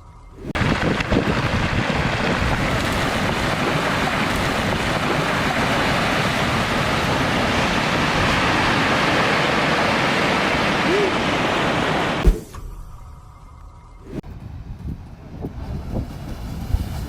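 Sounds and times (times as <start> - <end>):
wind: 0.0 - 17.0
rushing water: 0.5 - 12.3.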